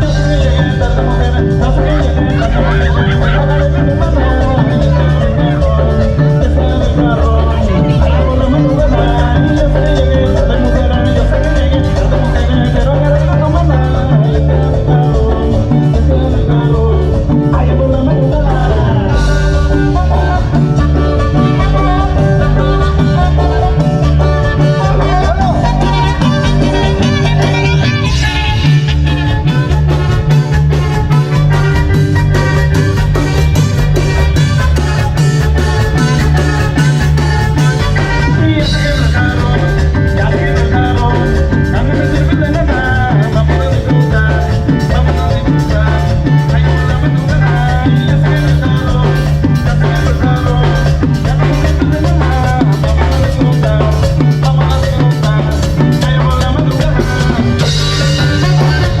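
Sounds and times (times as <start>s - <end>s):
live band playing cumbia: 0.0s - 59.0s
repeating bass line: 0.0s - 59.0s.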